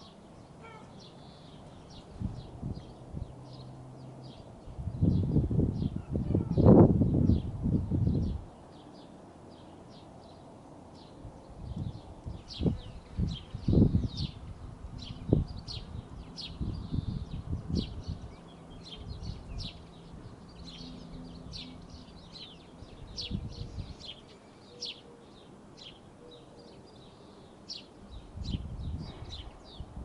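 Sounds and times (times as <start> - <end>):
small birds chirping: 0.0 - 30.0
low rumbles on microphone: 4.8 - 8.4, 11.5 - 18.3.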